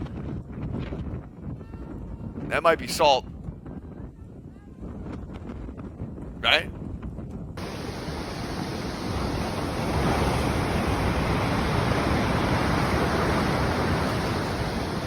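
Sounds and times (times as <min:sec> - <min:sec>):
storm wind roaring: 0:00.0 - 0:15.0
pelting rain: 0:07.6 - 0:15.0.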